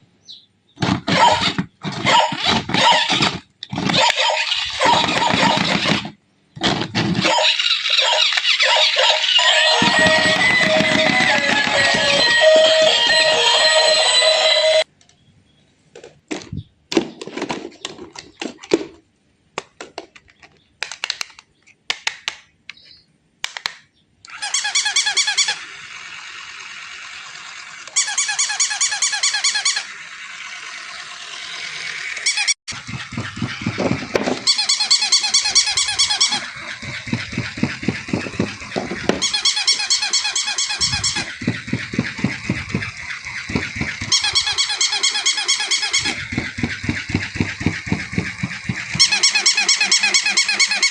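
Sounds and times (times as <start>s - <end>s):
toys clicking and knocking: 0.8s - 15.2s, 15.9s - 50.9s
electronic toy sound effects: 1.1s - 6.1s, 7.2s - 14.9s, 24.3s - 50.9s.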